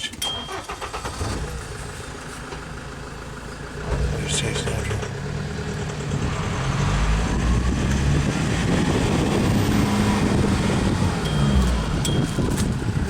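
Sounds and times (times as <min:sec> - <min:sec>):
vehicle engine running: 0:00.4 - 0:13.0.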